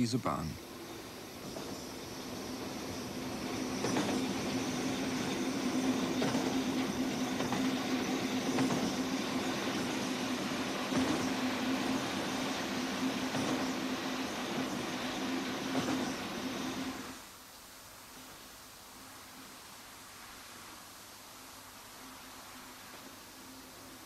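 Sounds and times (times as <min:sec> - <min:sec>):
locomotive engine hum: 0:00.0 - 0:17.2
rumbling wheel and rail noise: 0:00.0 - 0:17.3.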